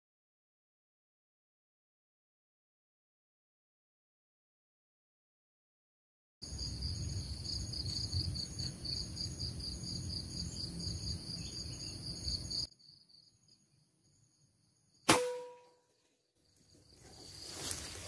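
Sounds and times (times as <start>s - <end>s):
insects buzzing: 6.4s - 15.0s
air rifle shot: 15.1s - 15.7s.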